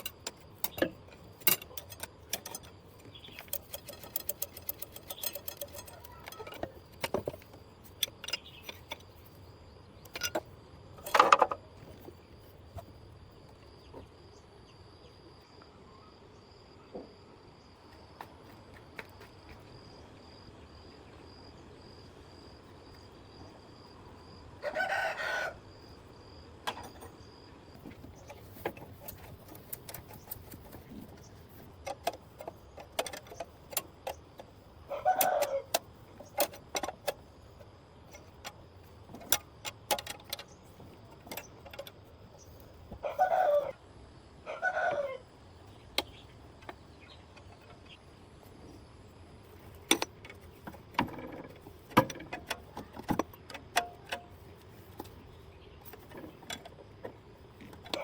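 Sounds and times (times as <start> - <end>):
sharp clicks and clinks: 0.0 - 9.4, 10.0 - 11.6
rooster crowing: 24.6 - 25.7, 34.9 - 35.7, 43.0 - 43.8, 44.4 - 45.3.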